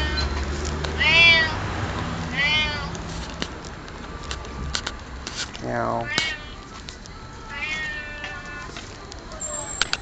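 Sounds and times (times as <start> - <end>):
cat meowing: 0.0 - 0.4, 1.0 - 1.6, 2.3 - 3.0, 6.0 - 6.6, 7.5 - 8.7.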